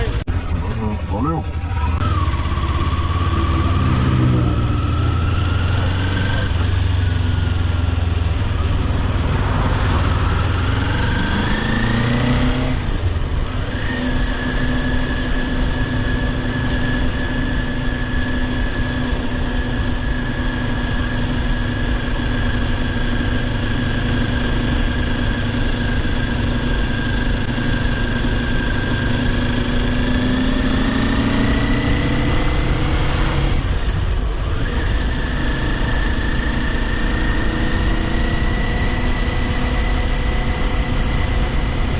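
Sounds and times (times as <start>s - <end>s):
motorcycle engine revving and shifting: 1.5s - 41.9s
rushing wind noise: 8.1s - 15.1s.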